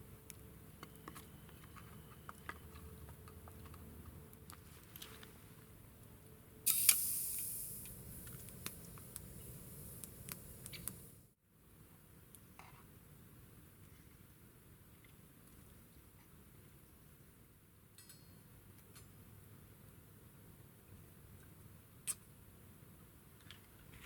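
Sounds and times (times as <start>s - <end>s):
faint clicks and ticks: 6.7s - 11.1s
stove loud hiss: 6.7s - 11.3s.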